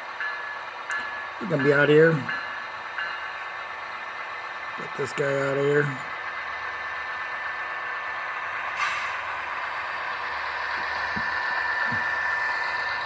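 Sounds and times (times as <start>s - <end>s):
model locomotive running sound: 0.0s - 13.0s
short air hiss: 8.8s - 9.4s.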